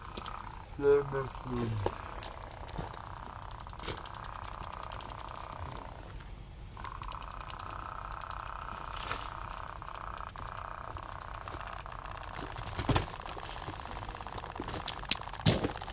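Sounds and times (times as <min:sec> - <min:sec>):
cicadas buzzing: 0:00.0 - 0:15.9
crackling knock: 0:09.0 - 0:15.9.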